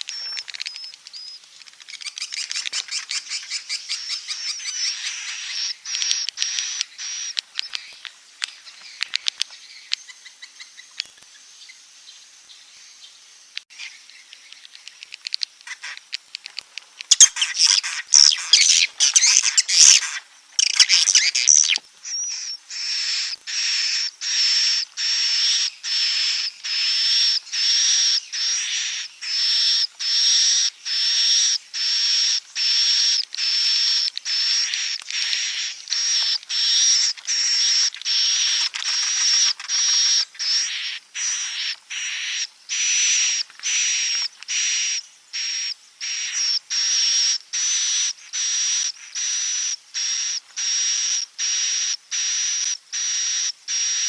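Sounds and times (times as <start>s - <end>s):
swiftlets twittering: 17.0s - 54.0s
short high bird chirps: 17.1s - 30.2s.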